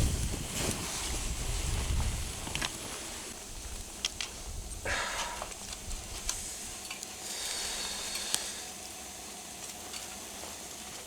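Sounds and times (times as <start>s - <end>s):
food sizzling over campfire: 0.0s - 11.0s.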